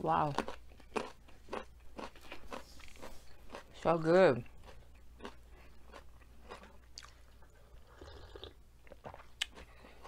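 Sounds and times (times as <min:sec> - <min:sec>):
person chewing food: 0:00.1 - 0:10.0.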